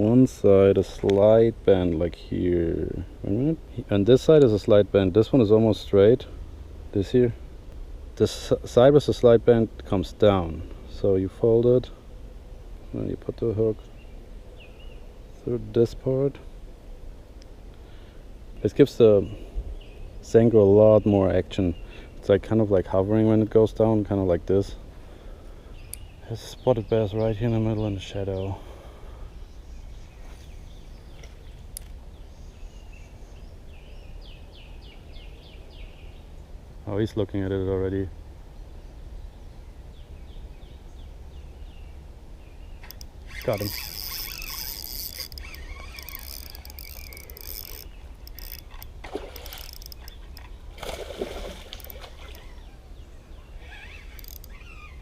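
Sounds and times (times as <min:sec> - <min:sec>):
bird chirping: 0:25.7 - 0:36.5, 0:38.6 - 0:55.0
sharp tick: 0:42.8 - 0:48.9
fish splashing at water surface: 0:49.0 - 0:50.1, 0:50.7 - 0:52.4.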